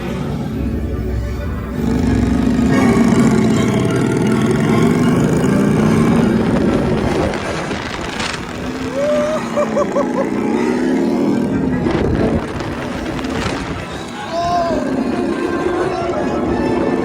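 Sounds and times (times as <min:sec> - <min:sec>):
coaster train rumbling on track: 0:00.0 - 0:17.0
wavering motorbike engine drone: 0:00.0 - 0:17.0
wind rushing over microphone: 0:05.2 - 0:09.5, 0:11.4 - 0:17.0.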